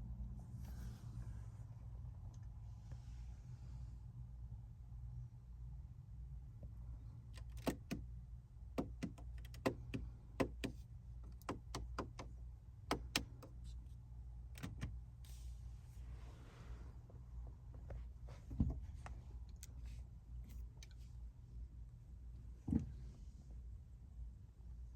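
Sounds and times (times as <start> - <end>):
steady low hum: 0.0 - 24.9
sharp clicks and knocks: 7.4 - 8.0, 8.8 - 13.7.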